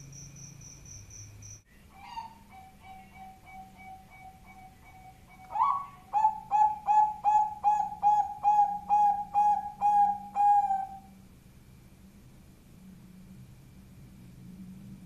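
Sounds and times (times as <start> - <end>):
dove cooing: 1.9 - 11.1.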